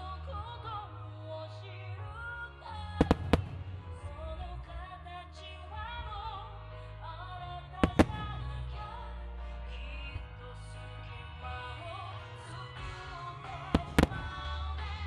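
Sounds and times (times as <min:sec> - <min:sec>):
song with singing voice: 0:00.0 - 0:15.0
firework shells bursting: 0:03.0 - 0:03.7, 0:07.8 - 0:08.4.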